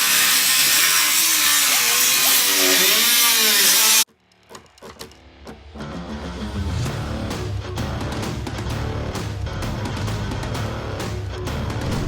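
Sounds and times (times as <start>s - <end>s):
power tool running at high speed: 0.0s - 4.0s
music: 4.1s - 12.0s.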